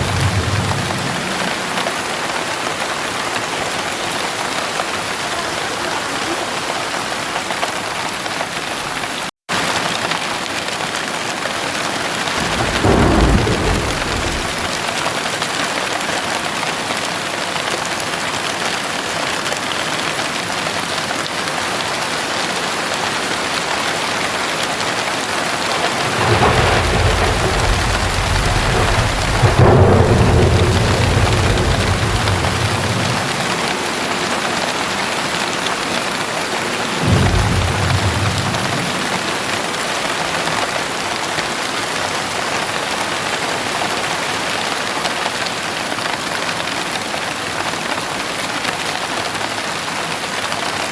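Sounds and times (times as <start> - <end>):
thunder rumbling: 0.0 - 3.2, 12.3 - 15.3, 25.5 - 40.6
heavy rain: 0.0 - 50.9.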